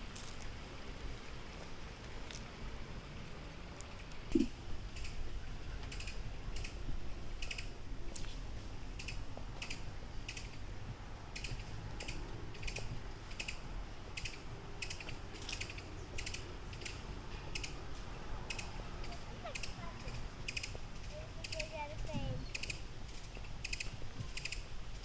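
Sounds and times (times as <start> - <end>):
footsteps walking: 0.1 - 0.6, 8.0 - 13.8.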